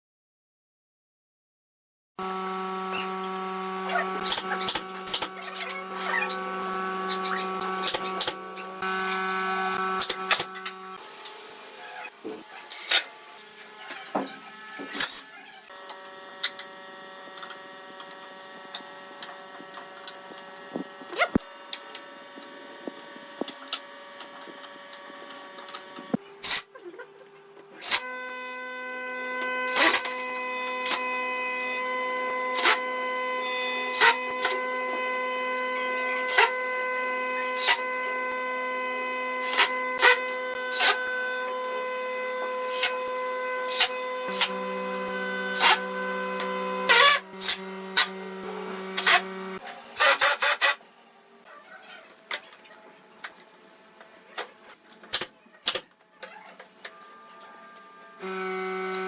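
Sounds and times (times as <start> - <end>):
workshop machine whining: 2.2 - 59.0.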